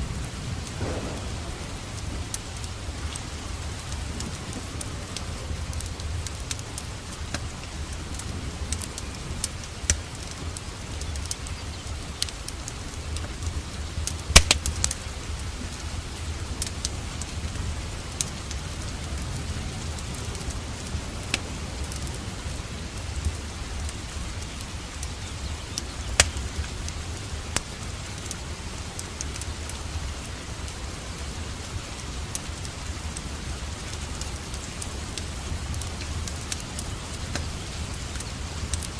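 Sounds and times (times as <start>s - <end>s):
low steady rumble: 0.0s - 11.4s
steady rain: 0.0s - 38.9s
wood fire crackling: 0.0s - 38.9s.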